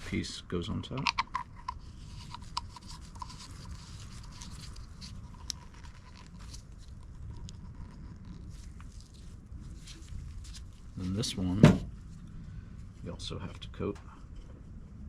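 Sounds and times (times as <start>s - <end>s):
low background rumble: 0.0s - 15.0s
plastic parts clicking: 1.0s - 3.5s.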